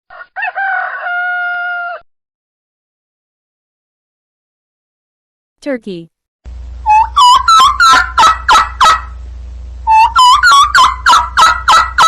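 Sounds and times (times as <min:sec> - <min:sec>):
steady low hum: 0:06.5 - 0:12.0
turkey gobbling: 0:06.9 - 0:09.2, 0:09.9 - 0:12.0.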